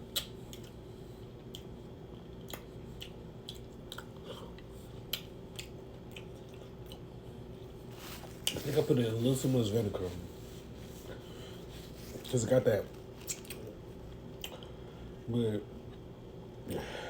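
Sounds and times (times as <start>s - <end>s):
faint steady hum: 0.0s - 17.0s
mouth clicks and smacks: 0.1s - 0.7s, 2.4s - 4.3s, 5.0s - 7.0s
person chewing food: 0.1s - 8.6s, 13.0s - 14.8s.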